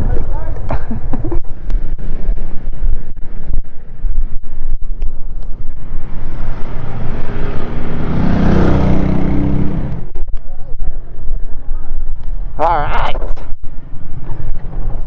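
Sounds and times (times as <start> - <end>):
wind buffeting microphone: 0.0 - 15.0
vehicle running: 1.2 - 12.8.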